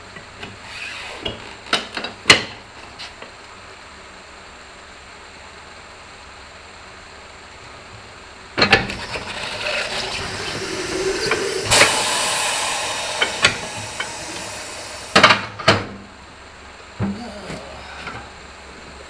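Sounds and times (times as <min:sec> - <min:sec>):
compressed air hissing: 0:08.8 - 0:16.3.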